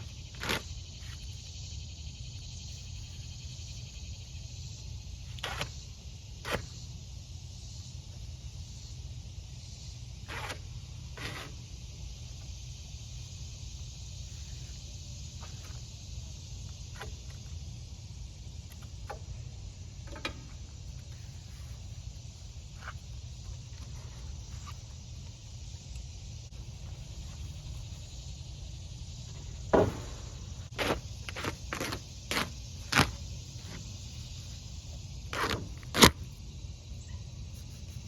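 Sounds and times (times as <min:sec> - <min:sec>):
low rumble and hiss: 0:00.0 - 0:38.0
tape pulled off roll: 0:35.3 - 0:36.2.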